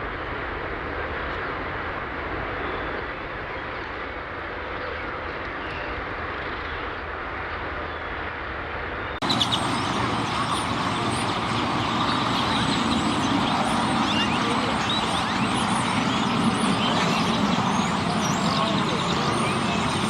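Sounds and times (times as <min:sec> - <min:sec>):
flock of birds chattering: 0:09.2 - 0:20.0
road traffic noise: 0:09.2 - 0:20.0.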